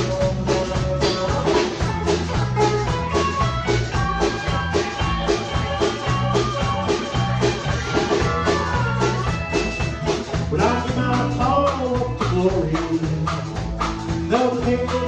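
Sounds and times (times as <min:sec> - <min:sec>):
bass line: 0:00.0 - 0:15.0
drum beat: 0:00.0 - 0:15.0
lead instrument melody: 0:01.0 - 0:10.4.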